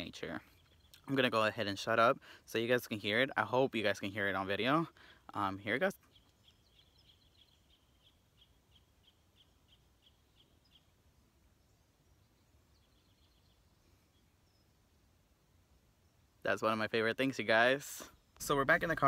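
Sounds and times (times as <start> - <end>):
small bird chirping: 0.0 - 1.6, 4.0 - 16.5.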